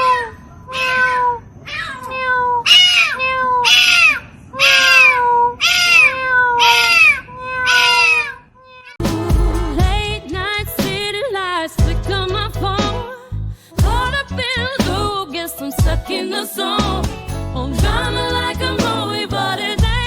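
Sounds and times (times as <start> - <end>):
cat meowing: 0.0 - 9.0
music with beat and singing: 9.0 - 13.2, 13.8 - 20.0.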